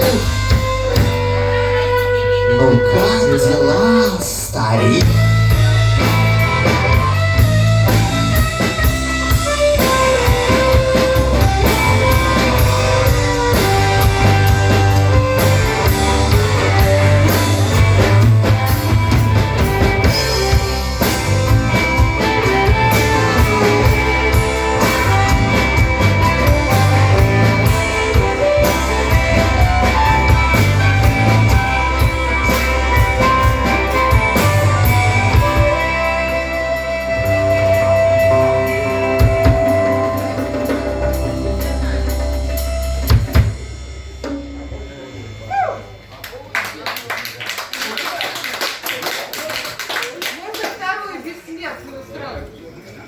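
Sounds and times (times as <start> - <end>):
guitar melodic line: 0.0 - 46.4
drum kit beat: 0.0 - 46.8
bass guitar: 0.0 - 47.7.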